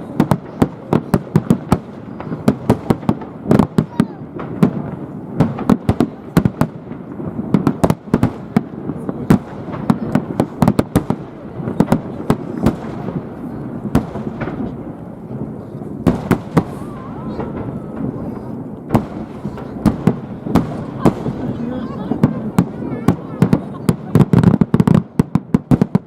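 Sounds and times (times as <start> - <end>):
fireworks bursting: 0.0 - 26.0.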